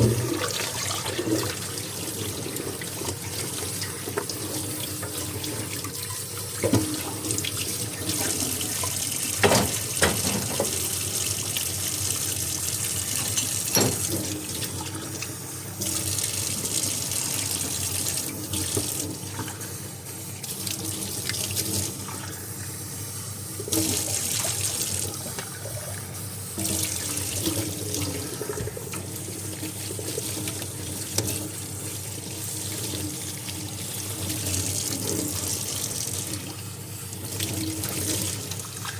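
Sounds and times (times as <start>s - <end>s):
tap water running into sink: 0.0s - 38.9s.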